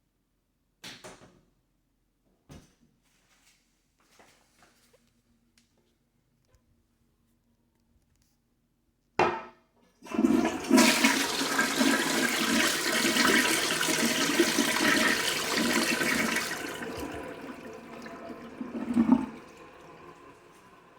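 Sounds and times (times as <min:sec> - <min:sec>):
toilet flush rush of water: 0:10.0 - 0:20.9.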